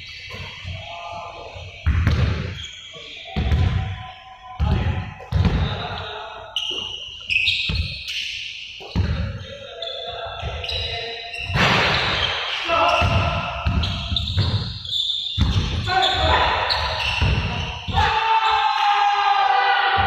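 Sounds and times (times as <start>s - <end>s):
balls bouncing on hard floor: 1.8s - 2.6s, 3.4s - 3.9s, 4.6s - 5.9s, 7.5s - 8.0s, 8.8s - 9.5s, 11.5s - 14.8s, 15.4s - 18.0s
short high squeaks: 5.7s - 13.1s, 13.8s - 18.9s.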